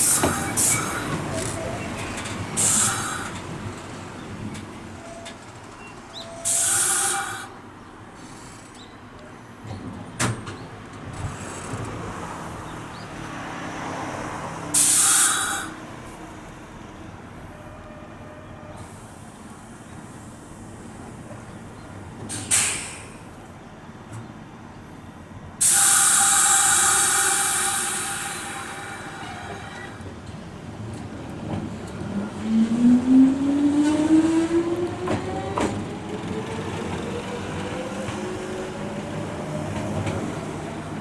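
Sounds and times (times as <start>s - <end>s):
compressed air hissing: 0.0s - 1.1s, 2.6s - 3.4s, 6.4s - 7.6s, 14.8s - 15.8s, 22.5s - 23.3s, 25.6s - 30.0s
train low steady hum: 0.0s - 41.0s.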